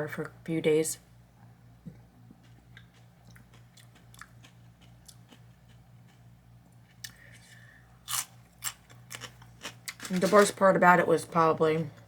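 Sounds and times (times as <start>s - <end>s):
steady low hum: 0.0s - 12.0s
person chewing crunchy food: 2.0s - 10.1s.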